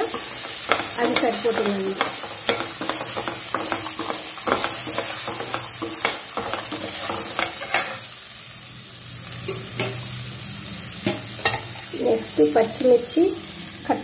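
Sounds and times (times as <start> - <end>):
metal spoon scraping pan: 0.0 - 8.1
chickpeas sizzling in oil: 0.0 - 14.0.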